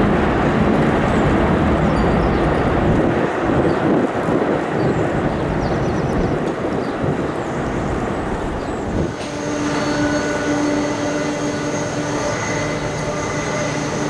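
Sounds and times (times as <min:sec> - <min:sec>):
aircraft engines roaring: 0:00.0 - 0:14.0
high constant engine whine: 0:07.8 - 0:14.0.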